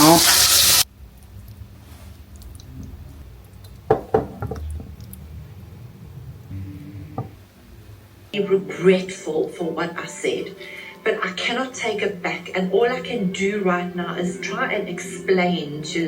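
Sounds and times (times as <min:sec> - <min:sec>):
low hum: 0:00.9 - 0:08.7.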